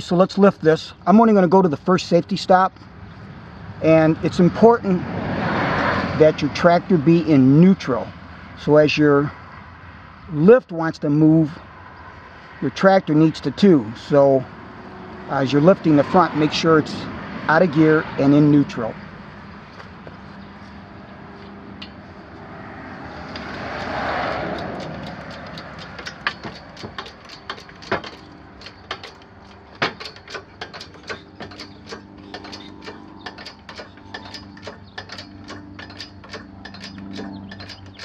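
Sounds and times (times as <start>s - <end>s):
sharp clicks of lift: 24.2s - 38.0s.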